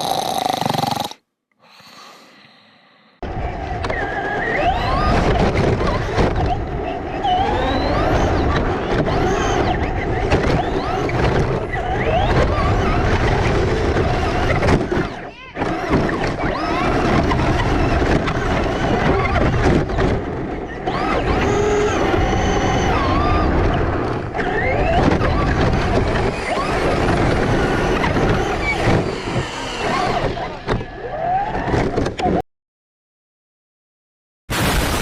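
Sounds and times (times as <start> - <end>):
rc car electric motor whining: 20.8 - 31.6.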